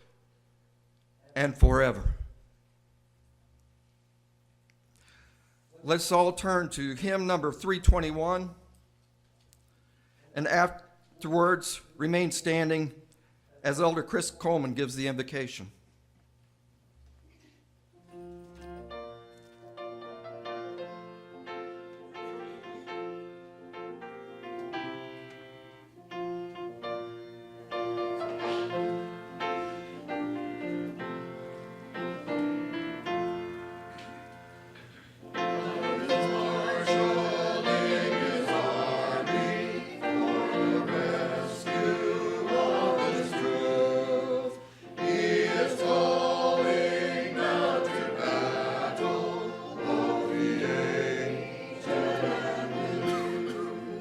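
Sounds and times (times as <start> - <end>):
congregation singing a hymn: 19.8 - 54.0
keyboard playing: 35.3 - 54.0.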